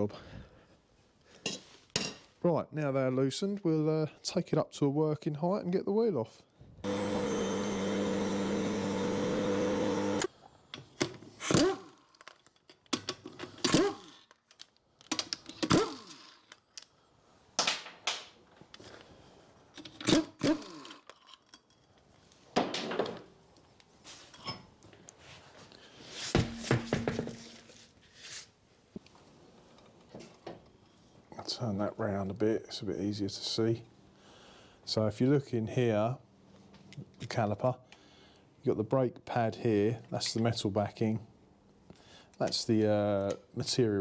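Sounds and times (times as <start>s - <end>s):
vehicle lift motor humming: 6.8s - 10.3s.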